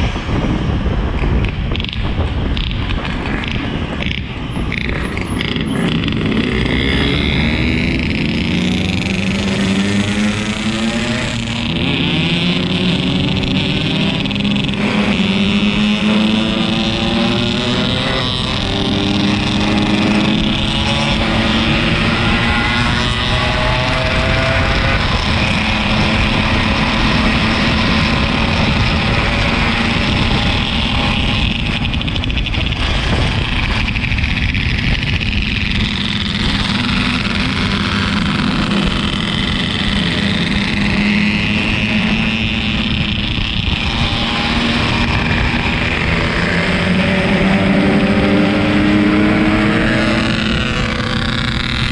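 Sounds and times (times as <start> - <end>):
motorcycle engine running: 0.0 - 51.9
wind and road noise: 0.0 - 51.9.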